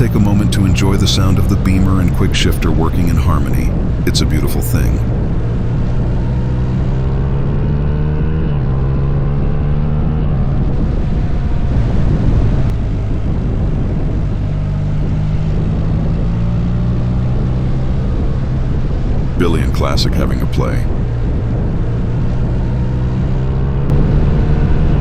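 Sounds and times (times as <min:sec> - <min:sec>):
motorcycle engine shifting gears: 0:04.8 - 0:20.0, 0:20.6 - 0:25.0.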